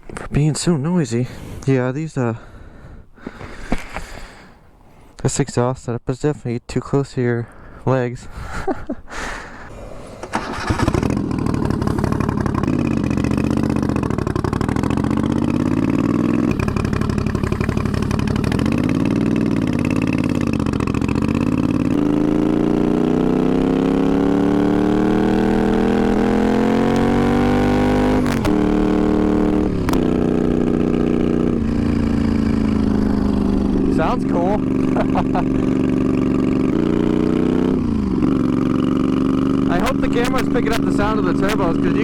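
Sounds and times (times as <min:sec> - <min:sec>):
motorcycle engine revving: 0:09.7 - 0:42.0.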